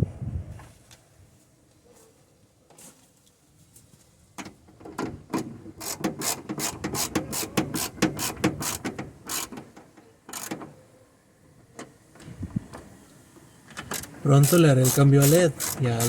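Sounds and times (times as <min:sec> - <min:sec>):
hand ratchet clicking: 0:05.8 - 0:09.5, 0:14.4 - 0:16.0.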